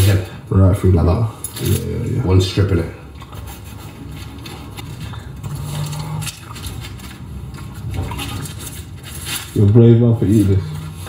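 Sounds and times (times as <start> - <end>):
bread knife sawing through bread: 8.2 - 11.0.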